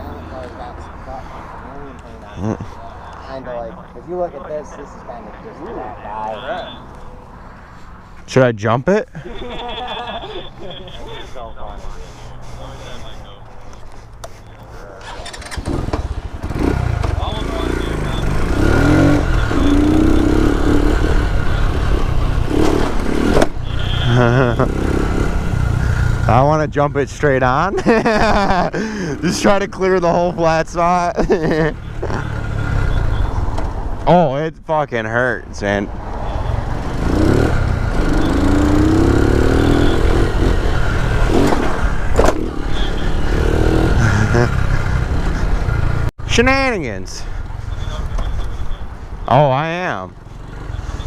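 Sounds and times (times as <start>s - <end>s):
motorcycle engine revving: 14.9s - 26.4s, 31.8s - 33.9s, 36.0s - 46.1s.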